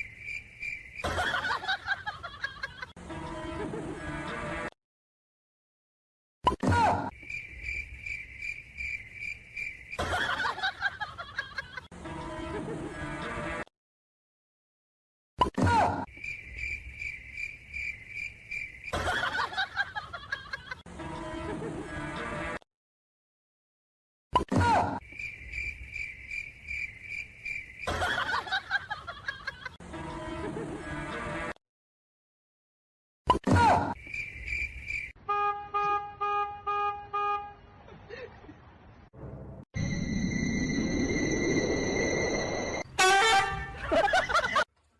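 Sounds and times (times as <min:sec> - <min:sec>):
insect chirping: 0:00.0 - 0:01.8, 0:07.1 - 0:10.8, 0:16.1 - 0:19.6, 0:25.0 - 0:28.7, 0:34.0 - 0:35.2, 0:39.8 - 0:42.8
horn tooting: 0:35.2 - 0:37.8, 0:42.8 - 0:43.9
steady high tone: 0:39.8 - 0:42.9.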